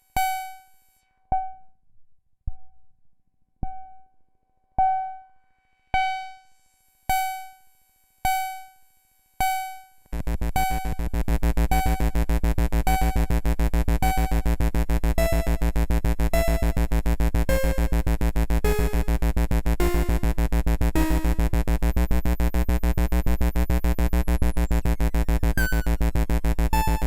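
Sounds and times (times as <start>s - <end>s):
loud low buzzing drone: 10.1s - 27.0s
rapid stream of synth notes: 10.2s - 27.0s
synth pinging decaying note: 21.0s - 27.0s.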